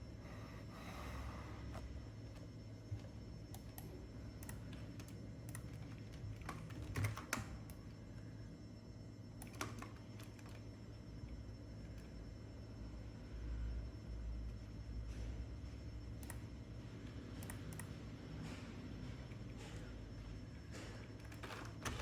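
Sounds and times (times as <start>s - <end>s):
steady low hum: 0.0s - 22.0s
computer keyboard keys clicking: 3.0s - 7.8s, 9.4s - 10.6s.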